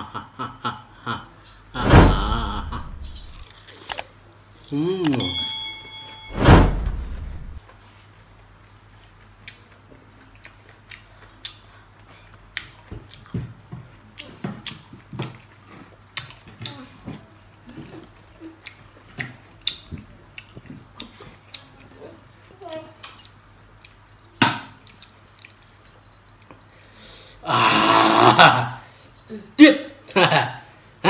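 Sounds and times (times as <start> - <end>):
loud rushing burst: 1.8 - 3.4, 6.3 - 7.6
man chewing pineapple: 7.9 - 22.5, 23.2 - 27.0.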